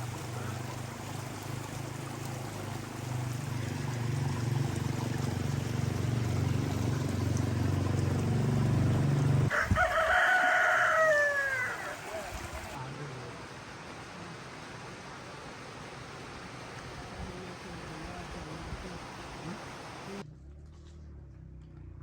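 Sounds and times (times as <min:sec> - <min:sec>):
rooster crowing: 0:09.4 - 0:12.8.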